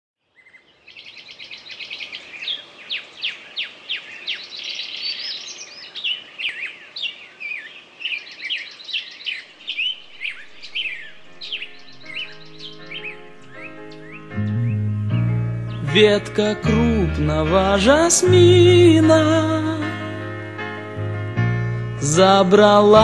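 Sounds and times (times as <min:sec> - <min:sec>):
songbirds singing: 0:00.2 - 0:19.0
soft music: 0:09.7 - 0:23.0.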